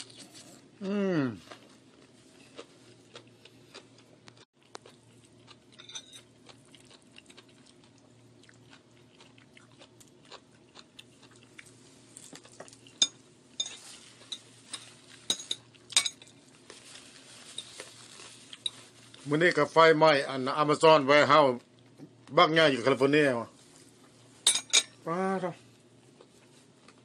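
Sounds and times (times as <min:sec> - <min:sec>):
close-up chewing: 0:01.4 - 0:13.0
fork clinking on a plate: 0:05.8 - 0:06.3.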